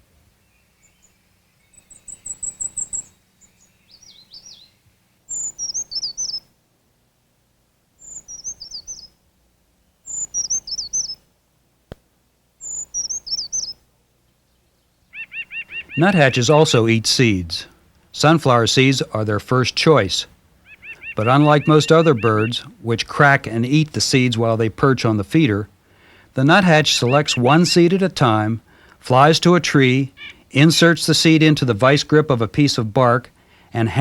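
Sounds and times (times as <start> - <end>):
bird singing wavering phrases: 0.4 - 6.5, 8.0 - 9.2, 9.8 - 11.3, 12.6 - 25.8, 26.4 - 34.0
very high bird trill: 0.4 - 6.5, 8.0 - 9.2, 10.0 - 11.2, 12.6 - 13.8, 15.0 - 16.9, 20.6 - 22.7, 26.5 - 28.0, 30.0 - 30.7.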